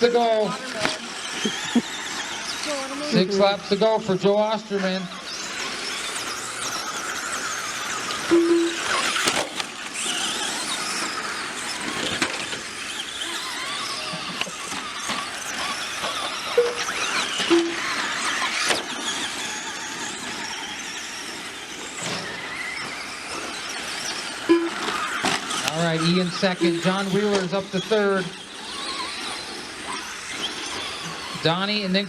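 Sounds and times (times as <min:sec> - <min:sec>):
rc car motors whining: 0:00.0 - 0:32.0
short beeps: 0:08.3 - 0:09.0, 0:16.6 - 0:17.9, 0:24.5 - 0:24.9, 0:26.6 - 0:27.0.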